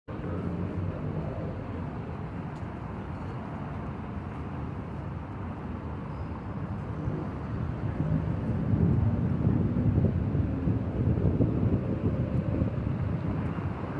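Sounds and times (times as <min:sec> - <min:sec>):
low outdoor rumble: 0:06.7 - 0:13.9.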